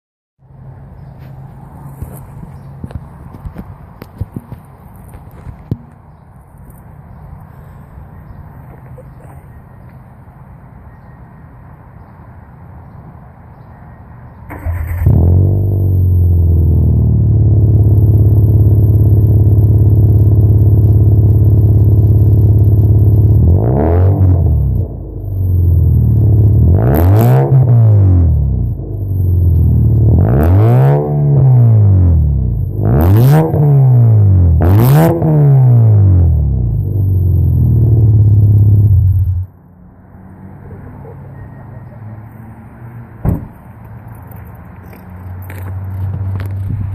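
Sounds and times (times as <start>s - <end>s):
car engine revving: 14.5s - 39.5s
car engine idling: 15.8s - 23.4s
sharp knock: 43.2s - 43.6s.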